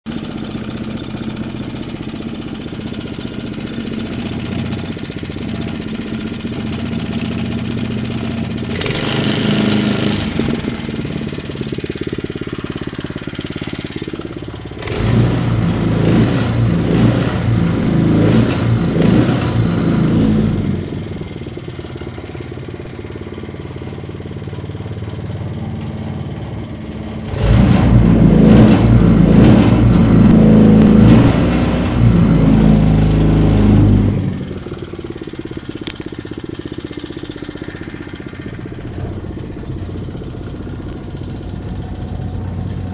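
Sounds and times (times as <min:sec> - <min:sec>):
small engine running and revving: 0:03.5 - 0:21.5, 0:27.2 - 0:36.1.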